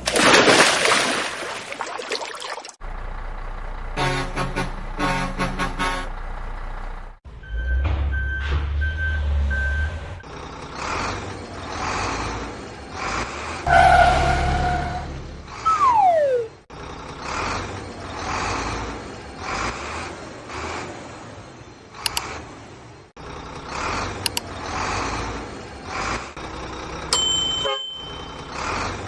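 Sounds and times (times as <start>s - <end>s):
cartoon engine rumble: 2.8s - 7.2s, 15.7s - 16.6s
horn-like blare: 4.0s - 6.2s
falling whistle: 15.7s - 16.6s.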